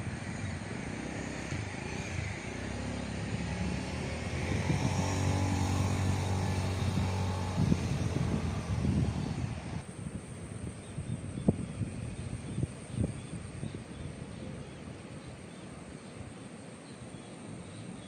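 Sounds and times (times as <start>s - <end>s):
motor engine passing by: 0.0s - 9.8s.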